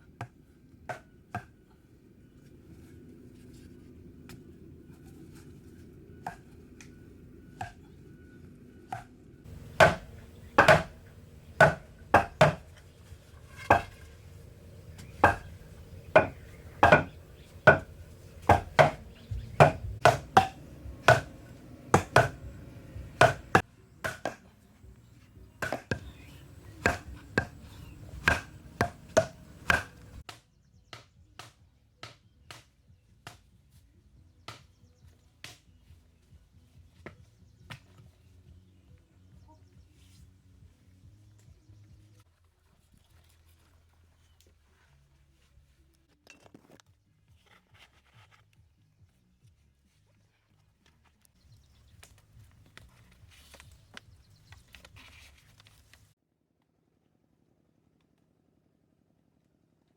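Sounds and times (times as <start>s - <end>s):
sharp chopping strikes: 8.9s - 12.7s, 15.0s - 22.5s, 23.1s - 24.4s, 25.6s - 26.2s, 26.8s - 33.4s.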